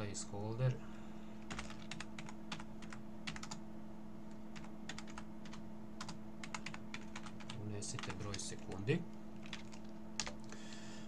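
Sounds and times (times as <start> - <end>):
computer keyboard typing: 1.5 - 3.6, 4.5 - 10.5.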